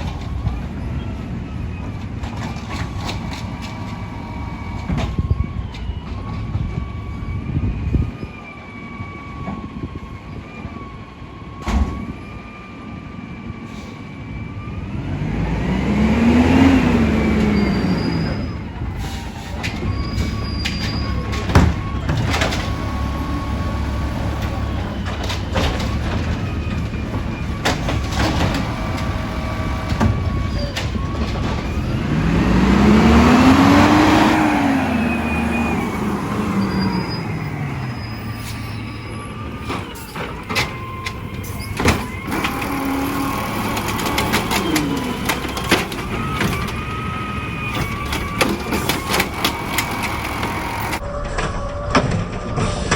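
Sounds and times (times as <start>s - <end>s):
garbage truck engine revving: 14.6s - 51.0s.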